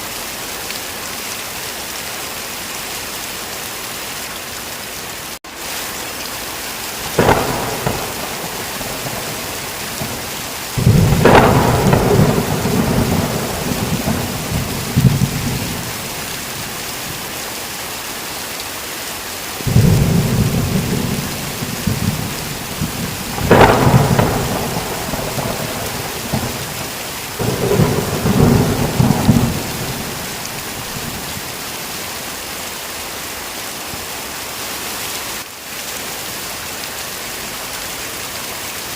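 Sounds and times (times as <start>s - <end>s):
heavy rain falling: 0.0s - 38.9s
thunder cracking and rumbling: 7.0s - 17.3s, 19.6s - 31.6s.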